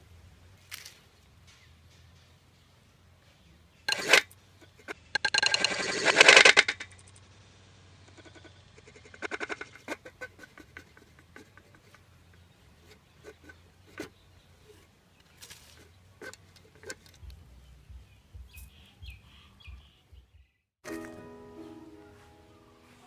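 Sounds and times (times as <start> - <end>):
rustle: 0.0 - 17.9
bird rattling chatter: 3.9 - 7.3, 8.0 - 14.1.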